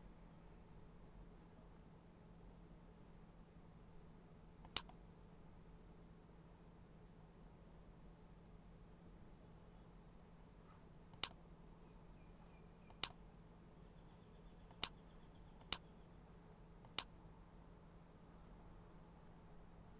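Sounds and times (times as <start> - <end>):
faint low hum: 0.0 - 19.9
computer mouse button clicks: 4.6 - 5.0, 11.1 - 11.4, 12.9 - 13.2, 14.7 - 15.0, 15.6 - 15.9, 16.8 - 17.1.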